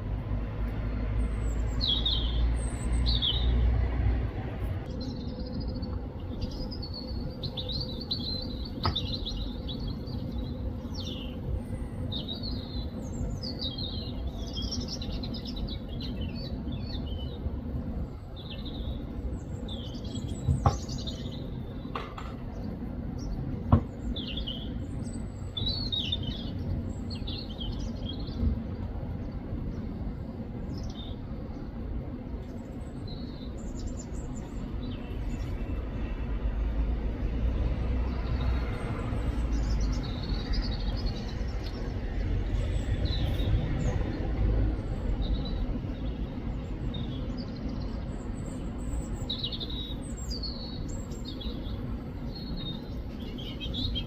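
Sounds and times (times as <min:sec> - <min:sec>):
robin singing: 0:01.3 - 0:03.6, 0:04.9 - 0:17.5, 0:18.1 - 0:28.4, 0:39.1 - 0:42.0, 0:45.2 - 0:54.0.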